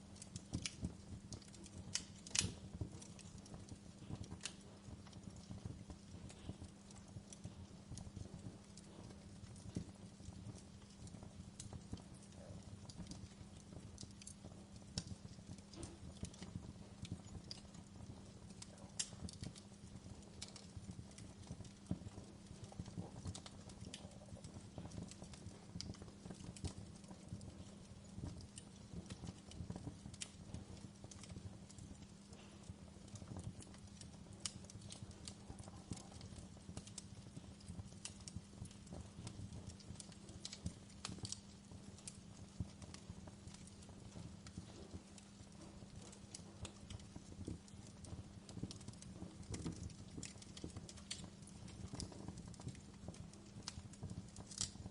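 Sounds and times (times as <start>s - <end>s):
low steady hum: 0.0s - 53.8s
wood fire crackling: 0.0s - 54.9s.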